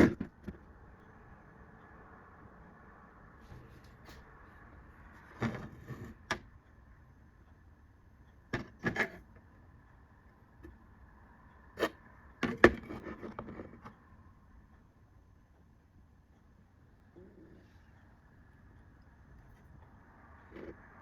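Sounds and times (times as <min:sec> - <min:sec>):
computer parts clicking and knocking: 0:00.0 - 0:00.8, 0:08.3 - 0:09.5, 0:11.8 - 0:14.0
faint steady hum: 0:00.0 - 0:21.0.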